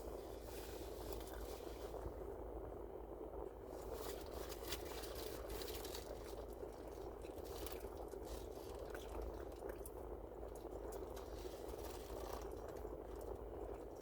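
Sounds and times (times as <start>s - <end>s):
low background hum: 0.0s - 14.0s
wrapper crackles and clicks: 3.8s - 9.9s.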